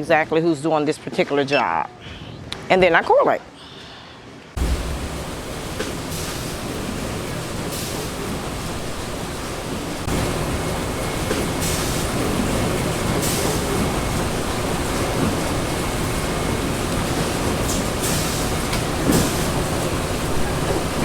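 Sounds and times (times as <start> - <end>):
brief hissing: 4.6 - 10.2
printing machinery rumbling: 4.6 - 21.0.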